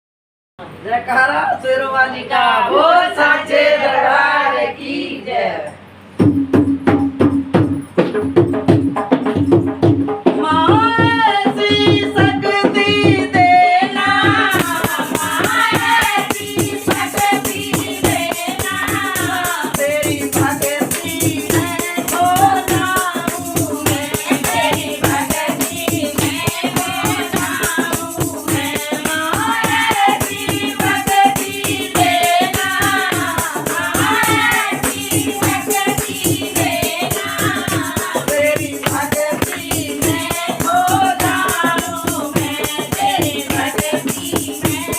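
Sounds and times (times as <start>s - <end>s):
fast rattling percussion: 6.2s - 44.9s
person singing devotional song: 10.4s - 44.9s.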